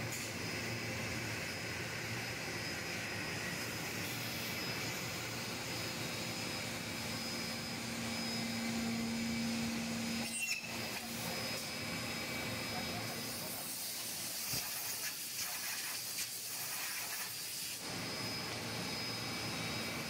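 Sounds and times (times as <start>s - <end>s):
boring machine motor hum: 0.3s - 13.5s.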